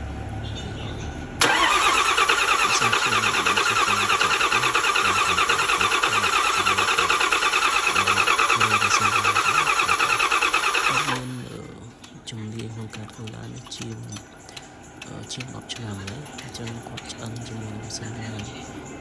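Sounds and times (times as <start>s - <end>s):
car engine turning over: 0.0s - 19.0s.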